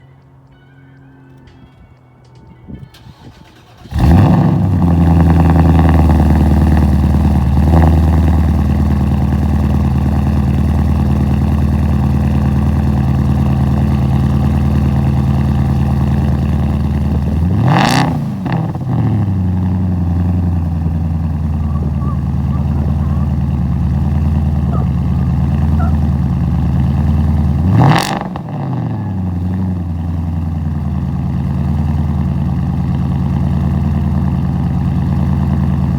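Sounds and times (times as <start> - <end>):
loud car engine idling: 3.6 - 35.9.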